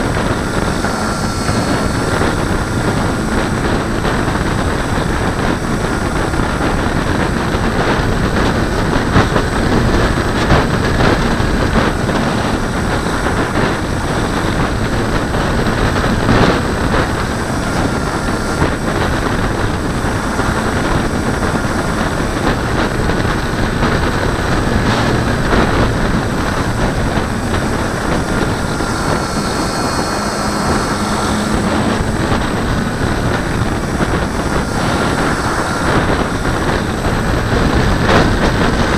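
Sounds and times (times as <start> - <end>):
wind buffeting a camera: 0.0 - 38.9.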